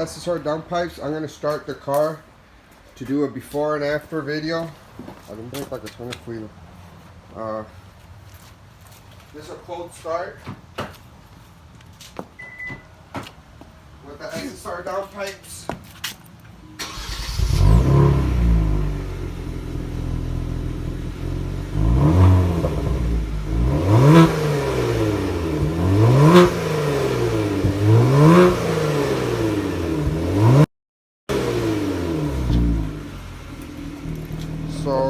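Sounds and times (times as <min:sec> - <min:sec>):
car engine starting and revving: 0:16.8 - 0:30.7, 0:31.3 - 0:35.0.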